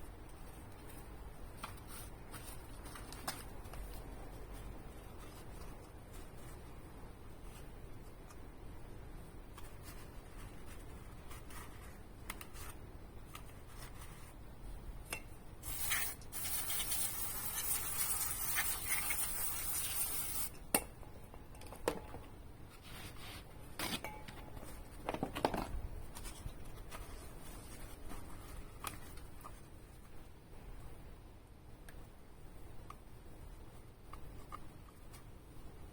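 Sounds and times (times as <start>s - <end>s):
aerosol can spraying: 15.6s - 20.5s.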